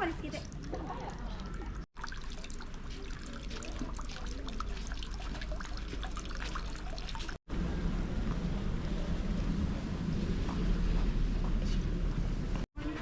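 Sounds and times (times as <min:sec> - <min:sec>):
small water splashes: 0:00.0 - 0:07.4
water trickling and dripping: 0:00.0 - 0:07.4.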